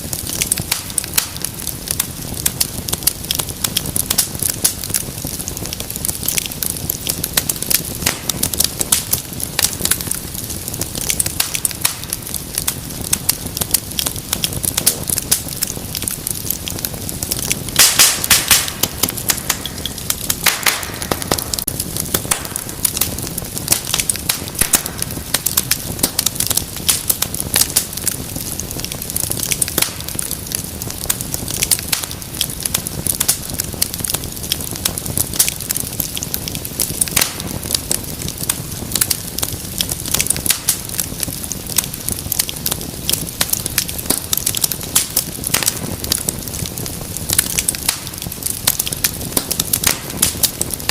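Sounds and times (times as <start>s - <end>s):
soft hiss of flame: 0.0s - 50.9s
wood fire crackling and popping: 0.0s - 50.9s.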